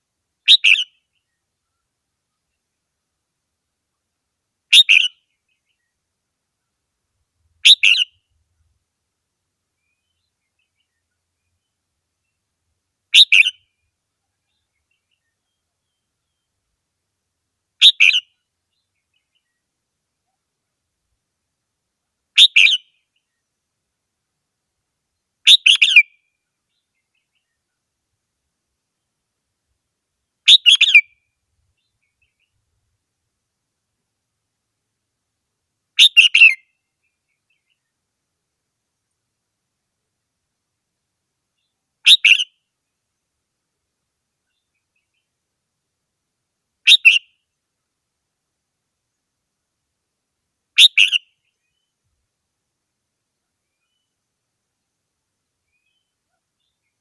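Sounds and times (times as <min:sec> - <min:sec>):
bird singing short phrases: 0:00.4 - 0:02.6, 0:04.7 - 0:06.0, 0:07.6 - 0:08.4, 0:09.8 - 0:12.4, 0:13.1 - 0:16.6, 0:17.8 - 0:20.4, 0:22.4 - 0:23.5, 0:25.2 - 0:27.8, 0:30.4 - 0:32.6, 0:36.0 - 0:38.0, 0:41.6 - 0:42.7, 0:44.4 - 0:45.3, 0:46.8 - 0:47.4, 0:50.8 - 0:52.0, 0:53.6 - 0:54.2, 0:55.6 - 0:57.0.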